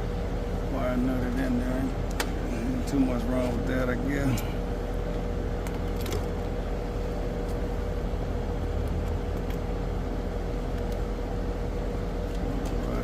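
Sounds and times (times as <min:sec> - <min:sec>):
air conditioning unit drone: 0:00.0 - 0:13.0
light clicks of wiring work: 0:02.1 - 0:02.4.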